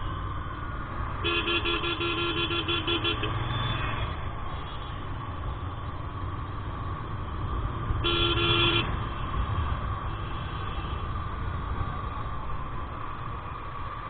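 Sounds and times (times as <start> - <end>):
motorcycle engine and road noise: 0.0 - 14.0
vehicle horn: 1.2 - 3.4, 8.0 - 9.0.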